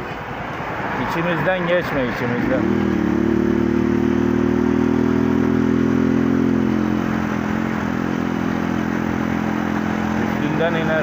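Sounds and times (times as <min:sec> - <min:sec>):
wind and road noise: 0:00.0 - 0:11.0
motorcycle engine running: 0:02.4 - 0:11.0.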